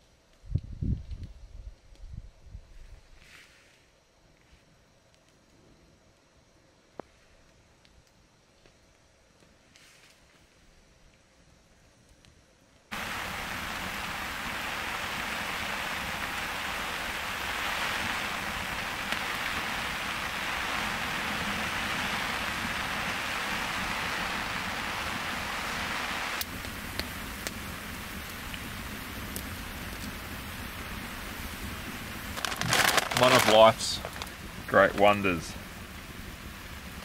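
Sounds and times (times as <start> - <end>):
heavy rain falling: 12.9 - 37.0.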